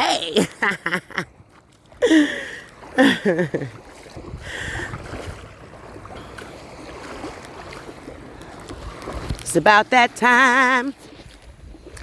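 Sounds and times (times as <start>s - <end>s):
surf washing: 0.0s - 12.0s
wind rumble on microphone: 4.0s - 6.2s, 6.9s - 9.7s, 10.9s - 12.0s.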